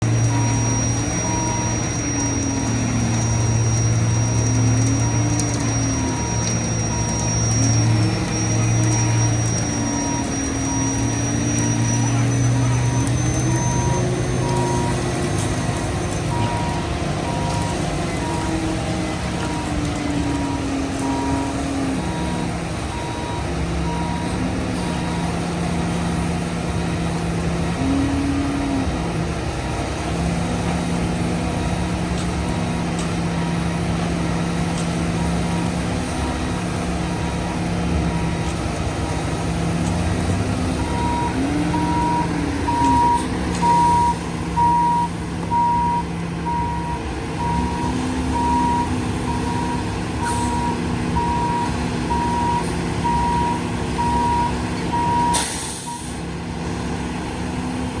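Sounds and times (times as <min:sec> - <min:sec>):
reverse alarm beeping: 0:00.0 - 0:26.0, 0:40.2 - 0:56.2
diesel truck engine running: 0:00.0 - 0:58.0
air brake hiss: 0:50.2 - 0:50.7, 0:55.3 - 0:56.2.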